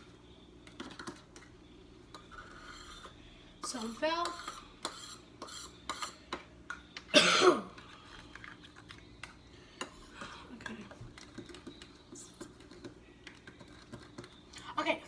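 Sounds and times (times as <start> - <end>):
spoon stirring in a cup: 0.0 - 7.1, 7.7 - 15.0
person coughing: 7.1 - 7.8.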